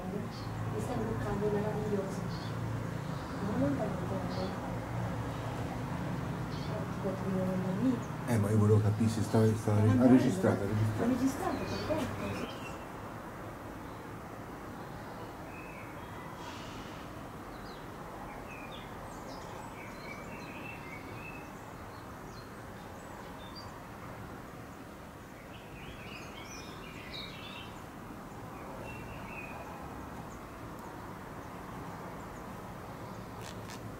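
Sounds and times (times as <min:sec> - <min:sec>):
small birds chirping: 0:00.0 - 0:13.0, 0:14.8 - 0:24.0, 0:24.6 - 0:33.9
outdoor background noise: 0:00.0 - 0:33.9.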